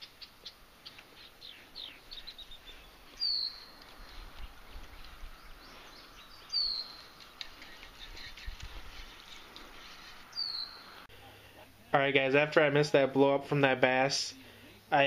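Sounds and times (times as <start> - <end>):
songbirds chirping and trilling: 0.0 - 11.5.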